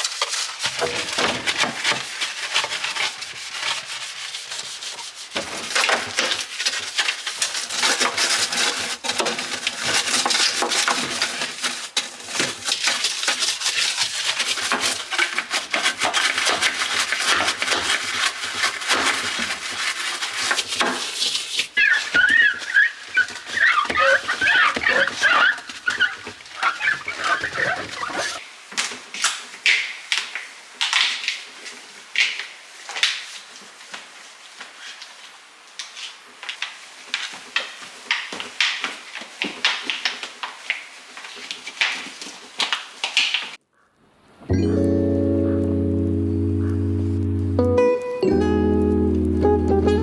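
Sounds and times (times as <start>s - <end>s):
scrubbing refrigerator parts: 0.0s - 28.4s.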